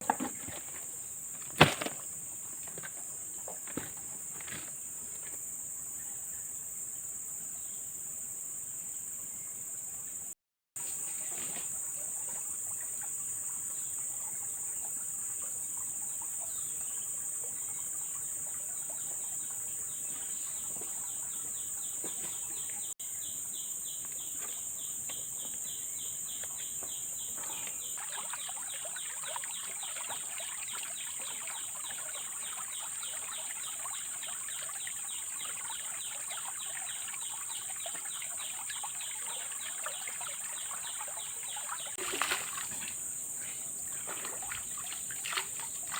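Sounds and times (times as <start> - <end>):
insect fast pulsing call: 10.8 - 45.9
high-pitched insect chorus: 19.0 - 45.9
trickle of water: 26.4 - 45.9.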